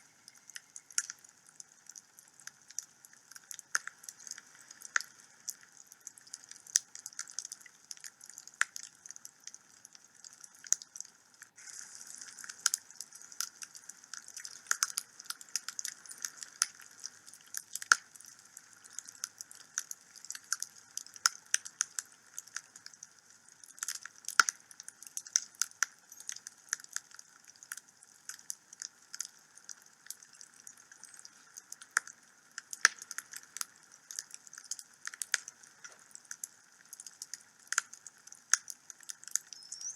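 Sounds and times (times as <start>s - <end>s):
fire crackling and popping: 0.0s - 39.9s
fire hissing: 11.6s - 17.2s.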